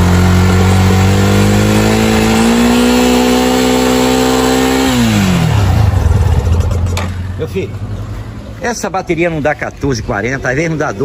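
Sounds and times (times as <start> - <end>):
motorcycle engine revving: 0.0 - 8.6.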